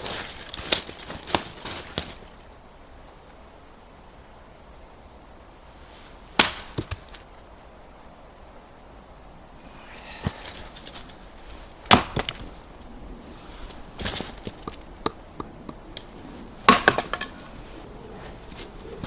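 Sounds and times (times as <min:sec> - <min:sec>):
wood cracking and splintering: 0:11.9 - 0:12.6, 0:16.7 - 0:17.4.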